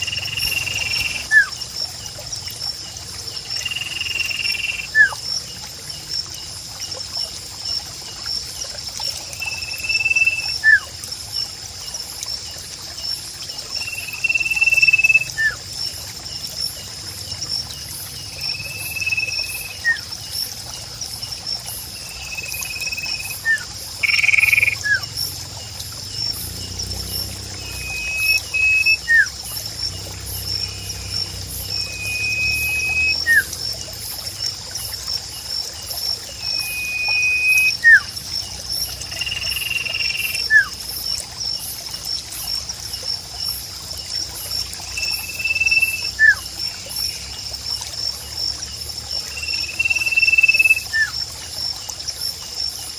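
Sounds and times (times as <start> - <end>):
bird whistle and chirp calls: 0.0 - 1.5, 22.3 - 25.0, 27.6 - 29.3, 31.7 - 33.5, 36.5 - 38.1, 39.3 - 40.7, 45.0 - 46.4, 49.6 - 51.1
trickling water: 0.0 - 52.9.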